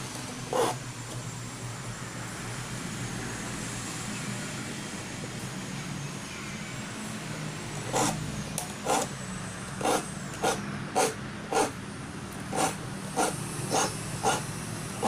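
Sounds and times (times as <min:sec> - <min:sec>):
file rasping on saw teeth: 0:00.4 - 0:00.8, 0:07.9 - 0:08.2, 0:08.8 - 0:09.1, 0:09.8 - 0:11.8, 0:12.5 - 0:15.0.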